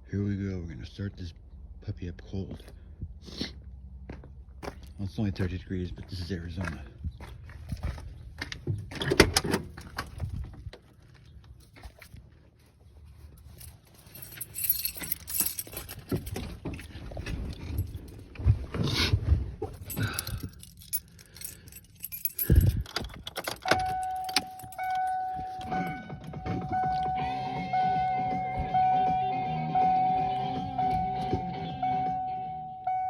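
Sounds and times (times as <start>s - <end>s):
car keys jangling: 13.2s - 18.5s, 19.6s - 27.2s
guitar music: 25.6s - 32.6s.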